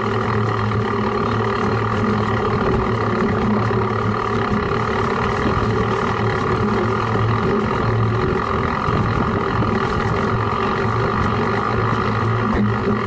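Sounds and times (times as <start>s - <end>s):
bike rumbling and rattling: 0.0s - 13.0s.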